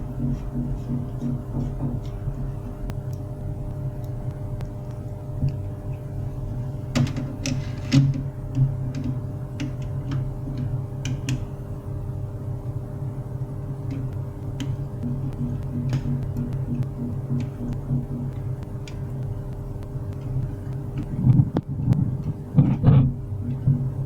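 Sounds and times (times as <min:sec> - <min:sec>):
laser printer motor hum: 0:00.0 - 0:24.0
printer mechanism clicks and clacks: 0:06.9 - 0:11.5.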